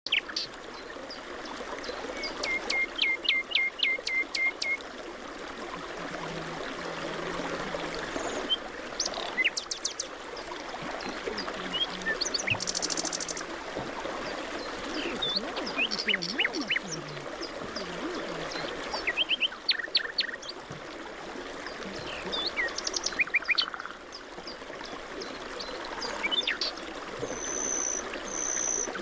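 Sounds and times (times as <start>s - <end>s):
wild birds calling: 8.1s - 10.1s, 11.0s - 20.6s.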